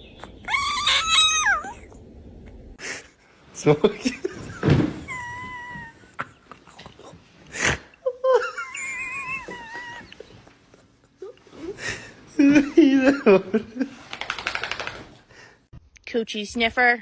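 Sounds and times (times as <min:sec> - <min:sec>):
pet animal whining: 0:00.2 - 0:02.1, 0:05.0 - 0:06.3, 0:08.6 - 0:10.5.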